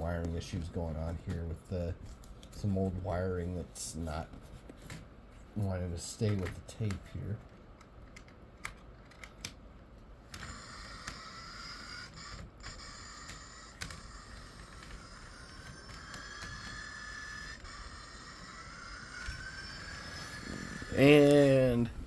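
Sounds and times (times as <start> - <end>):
faint electric motor whine: 5.6 - 22.0.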